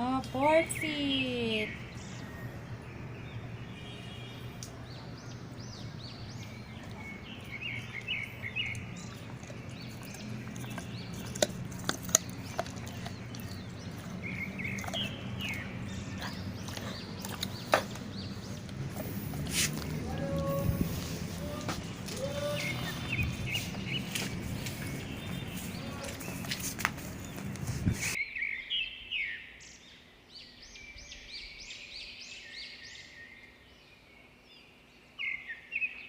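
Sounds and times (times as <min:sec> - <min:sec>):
bird chirps: 0:00.8 - 0:27.5
dog chewing: 0:06.4 - 0:27.7
bone crunching: 0:07.9 - 0:18.1.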